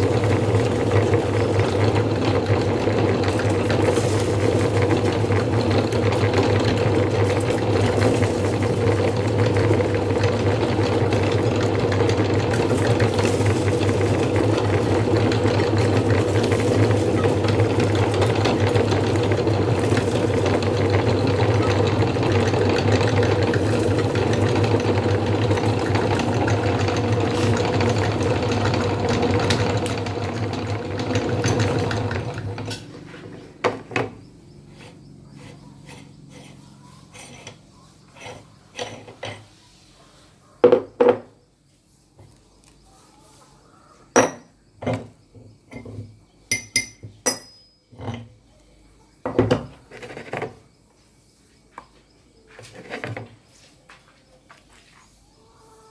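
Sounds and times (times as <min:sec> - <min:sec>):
electric meat grinder motor: 0:00.0 - 0:37.4.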